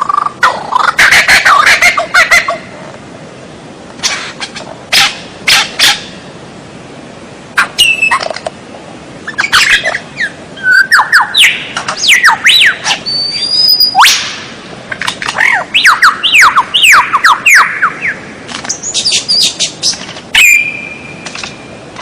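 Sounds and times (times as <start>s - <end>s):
songbird singing: 0.0s - 2.8s, 7.5s - 8.6s, 9.2s - 22.0s.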